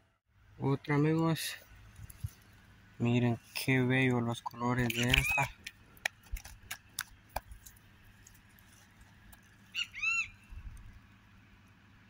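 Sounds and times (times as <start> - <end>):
bird calls: 4.4 - 6.0, 6.6 - 11.2
sharp clicks: 4.8 - 8.4.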